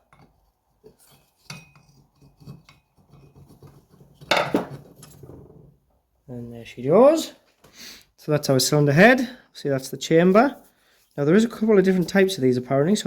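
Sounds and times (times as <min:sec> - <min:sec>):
metal clinks taps and scrapes: 0:00.0 - 0:05.3.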